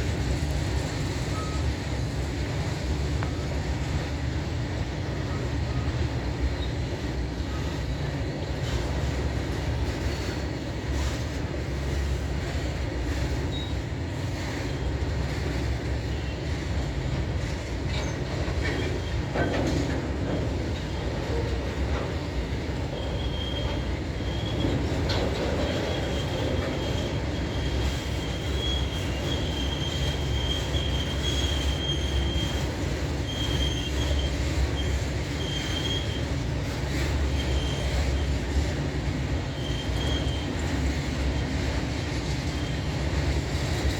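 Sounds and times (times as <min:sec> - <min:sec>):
train wheels rumbling on rails: 0:00.0 - 0:43.9
train wheels squealing: 0:00.1 - 0:43.9.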